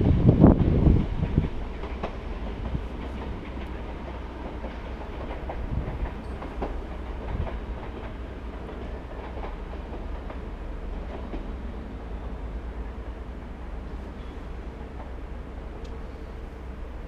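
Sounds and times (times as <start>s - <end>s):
train wheels clicking over rail joints: 0.0s - 11.6s
train rumble: 0.0s - 17.0s.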